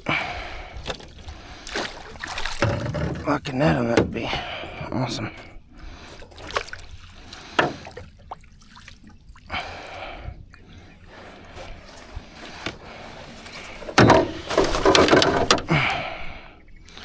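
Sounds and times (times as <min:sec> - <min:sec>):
water splashing and dripping: 0:00.8 - 0:03.4, 0:06.2 - 0:10.1
knocks and handling noises: 0:02.5 - 0:04.3, 0:11.6 - 0:16.0.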